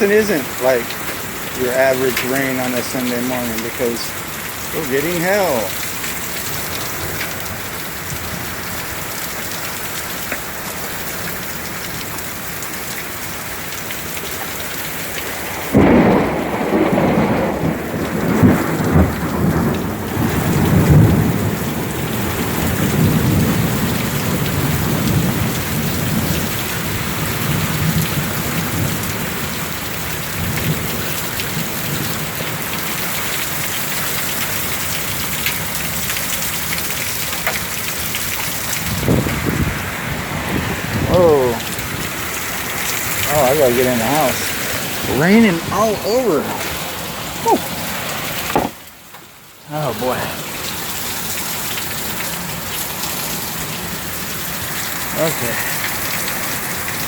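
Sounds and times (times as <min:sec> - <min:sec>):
heavy rain with hail: 0:00.0 - 0:57.0
thunder rumbling: 0:15.2 - 0:26.4.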